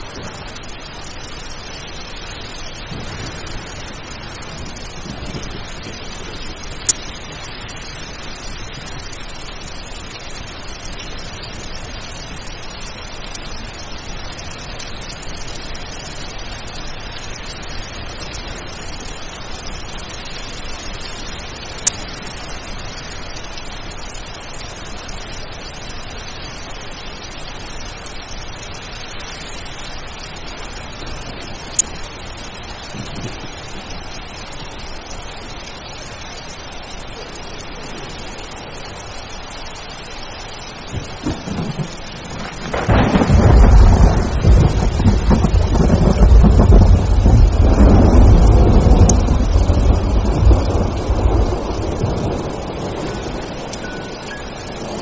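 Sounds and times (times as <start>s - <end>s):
heavy rain hissing: 0.0s - 55.0s
sharp ticks: 48.9s - 49.3s.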